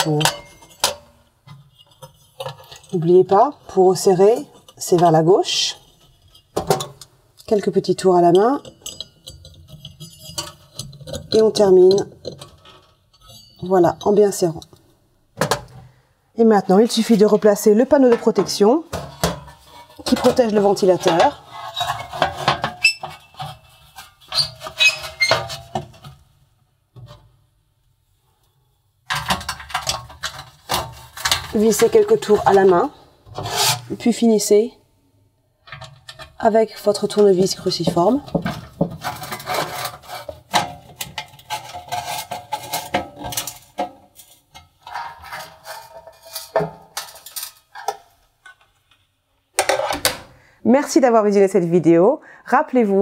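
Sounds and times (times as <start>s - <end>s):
metal panel clattering and scraping: 0.0s - 7.0s, 8.2s - 14.2s, 17.0s - 26.2s, 29.1s - 34.1s, 35.7s - 48.7s
screwdriver clicking and scraping metal: 8.3s - 14.8s, 18.3s - 26.2s.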